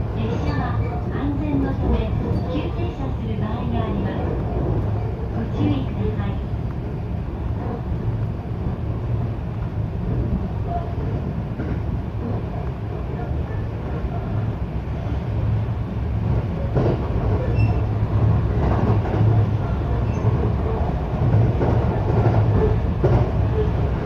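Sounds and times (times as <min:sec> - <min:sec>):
train wheels rumbling on rail: 0:00.0 - 0:24.0
track knocks: 0:16.3 - 0:19.4.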